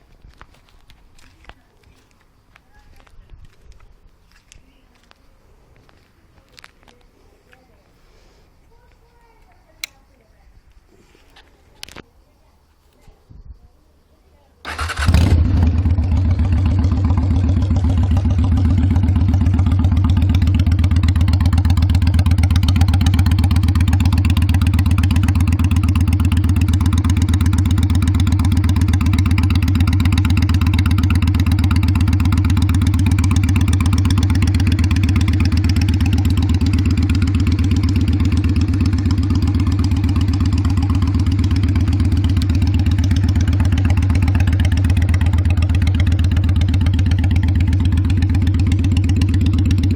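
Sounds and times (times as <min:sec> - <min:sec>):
motorcycle engine idling: 0:14.6 - 0:49.9.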